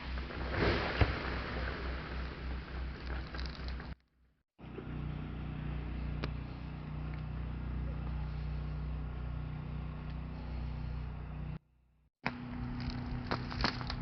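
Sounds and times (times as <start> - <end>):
motor vehicle running: 4.6 - 11.6, 12.2 - 14.0.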